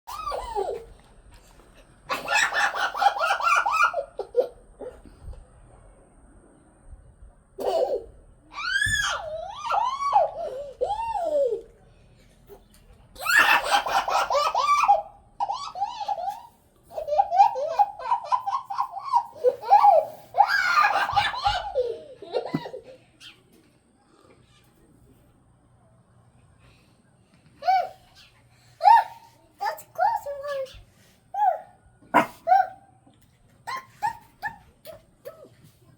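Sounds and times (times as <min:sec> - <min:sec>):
girl giggling: 0:18.8 - 0:23.2.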